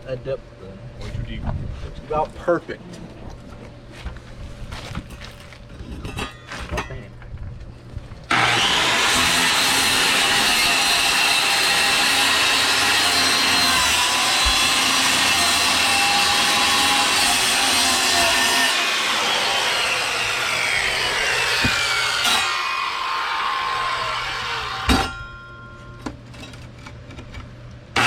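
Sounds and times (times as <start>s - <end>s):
circular saw cutting wood: 8.3s - 25.3s.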